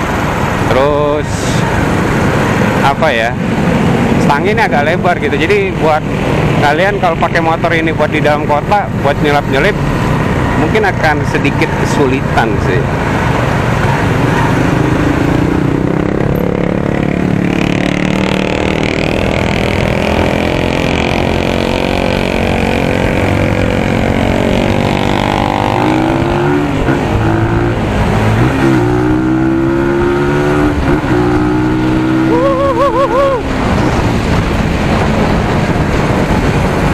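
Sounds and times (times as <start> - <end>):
motorcycle engine revving: 12.8 - 32.7.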